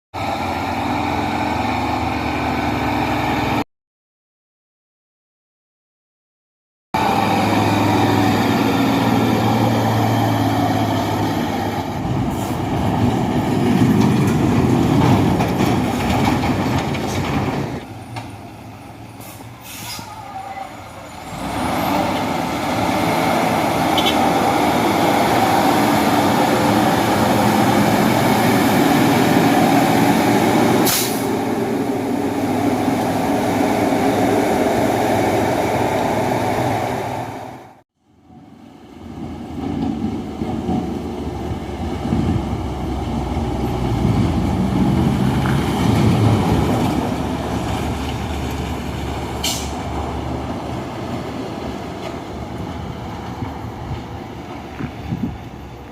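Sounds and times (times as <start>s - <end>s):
truck diesel engine labouring: 0.2s - 3.6s, 7.0s - 55.9s
brief hiss: 19.2s - 20.1s, 30.8s - 31.3s.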